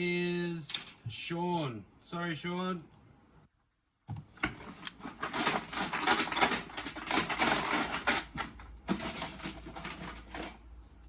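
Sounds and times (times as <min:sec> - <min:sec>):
hand rustling through paper tickets: 0:04.6 - 0:10.6.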